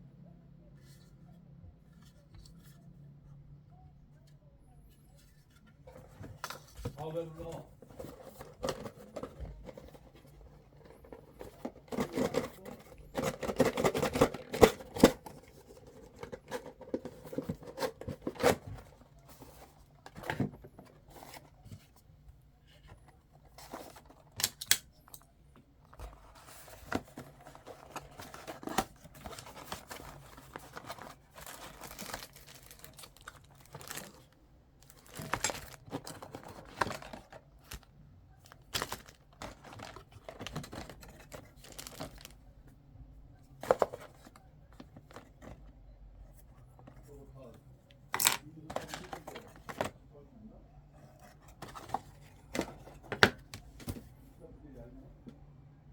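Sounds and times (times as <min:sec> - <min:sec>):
plastic packaging tearing: 0:29.2 - 0:34.2, 0:34.8 - 0:37.8, 0:41.6 - 0:42.3.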